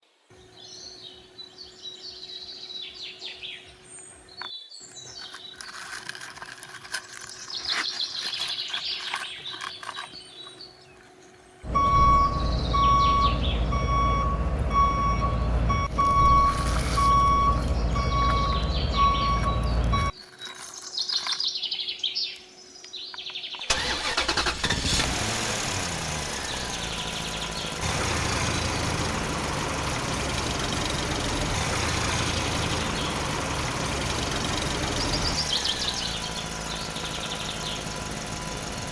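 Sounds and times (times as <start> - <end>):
birds chirping: 0.3 - 6.0, 7.1 - 38.9
heavy vehicle engine running: 11.6 - 20.2, 23.7 - 38.9
pulsed reversing beep: 11.7 - 20.1.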